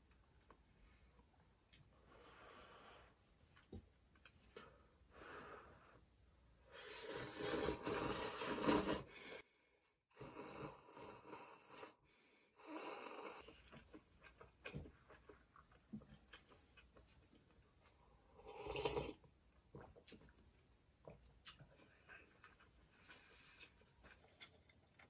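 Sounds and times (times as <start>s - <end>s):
slurping noodles: 6.8s - 9.4s, 18.4s - 19.2s.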